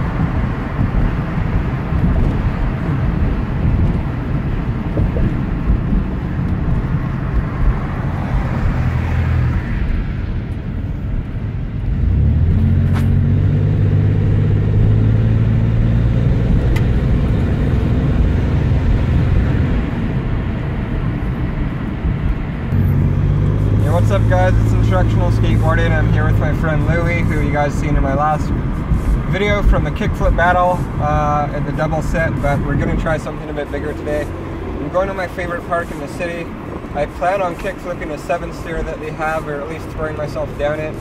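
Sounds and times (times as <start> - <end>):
car engine and exhaust running: 0.0 - 41.0.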